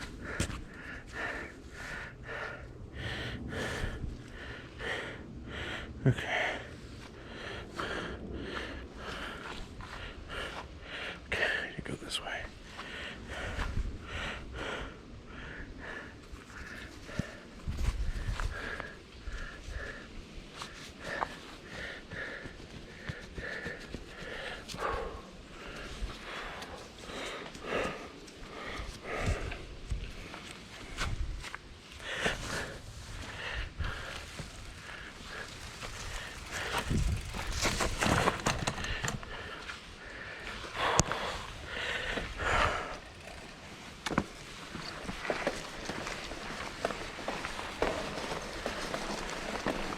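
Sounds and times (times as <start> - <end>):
low rumble: 0.0 - 10.9
person breathing hard: 0.0 - 11.7, 12.5 - 31.2, 31.8 - 49.9
bike rushing over dirt: 30.2 - 49.9
bike clicks and knocks: 34.2 - 39.8, 40.8 - 49.9.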